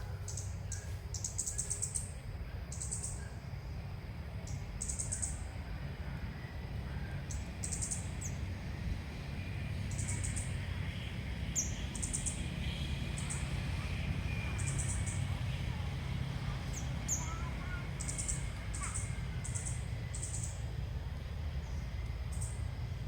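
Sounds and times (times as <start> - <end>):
steady low rumble: 12.9 - 23.0.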